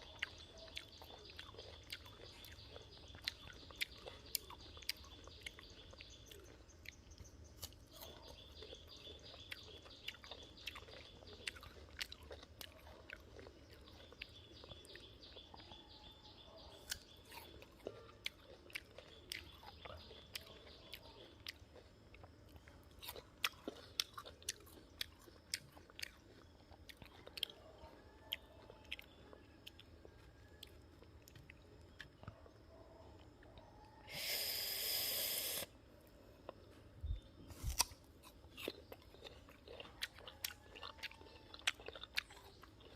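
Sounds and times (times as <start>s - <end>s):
soft chewing: 0.0s - 34.1s, 35.4s - 42.9s
crunching raw fruit: 0.0s - 42.9s.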